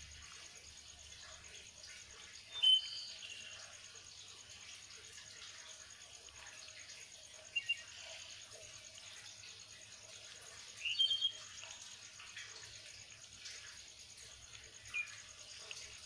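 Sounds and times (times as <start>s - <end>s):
pulsing high insect trill: 0.0s - 16.0s
bird chirps: 2.5s - 3.6s, 7.5s - 8.2s, 10.8s - 11.7s.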